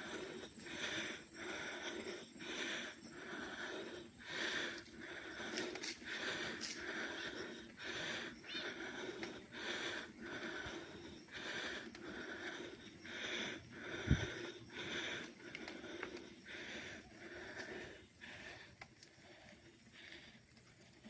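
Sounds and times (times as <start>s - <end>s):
heavy breathing: 0.0s - 21.0s.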